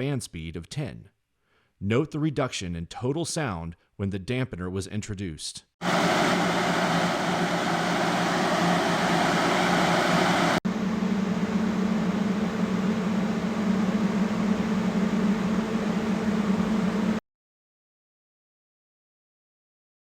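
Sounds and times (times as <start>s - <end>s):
cooler fan running: 5.8s - 17.2s.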